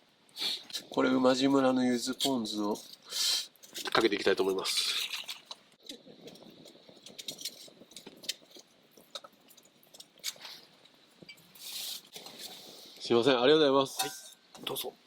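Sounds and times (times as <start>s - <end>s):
soft hiss: 10.0s - 15.0s
bottle and tableware clinking: 13.9s - 14.7s.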